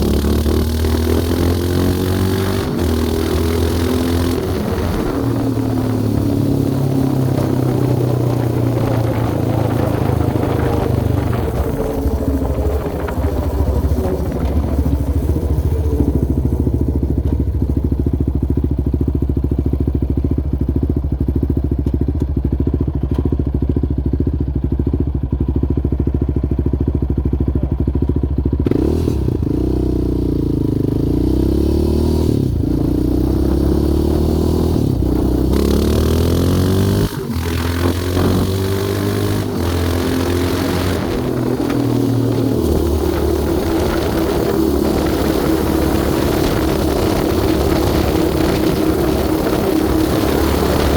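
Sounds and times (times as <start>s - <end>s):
quad engine revving: 0.0s - 17.4s, 28.6s - 50.9s.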